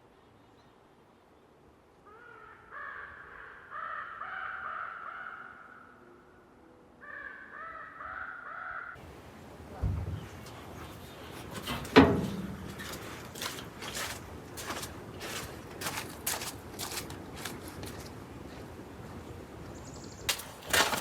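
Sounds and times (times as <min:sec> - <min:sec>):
low thump: 0:09.8 - 0:10.4.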